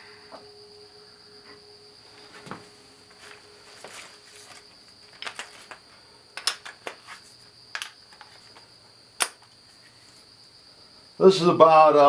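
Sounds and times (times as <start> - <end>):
steady high-pitched tone: 0.0 - 6.4
metal hand tools clinking: 3.2 - 5.8, 6.4 - 7.1.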